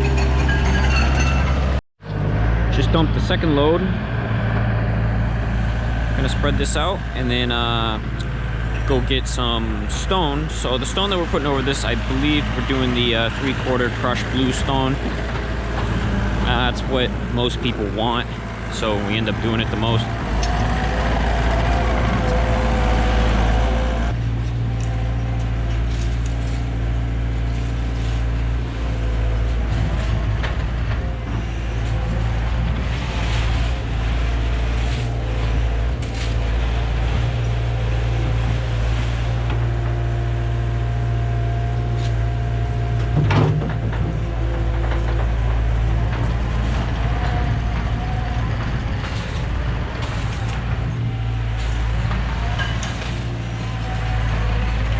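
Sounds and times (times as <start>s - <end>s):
heavy diesel engine running: 0.0s - 54.9s
steady whine: 2.1s - 40.0s.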